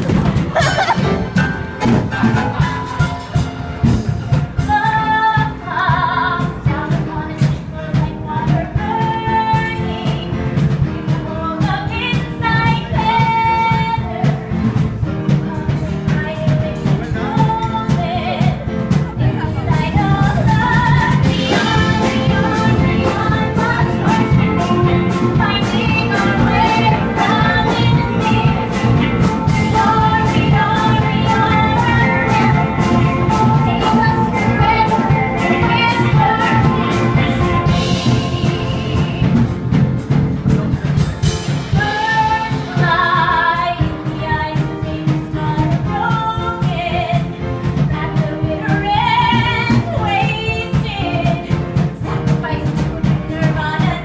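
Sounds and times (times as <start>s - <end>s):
band accompaniment: 0.0s - 54.0s
steady drum beat: 0.0s - 54.0s
woman singing pop-rock song: 15.2s - 39.5s, 41.7s - 54.0s.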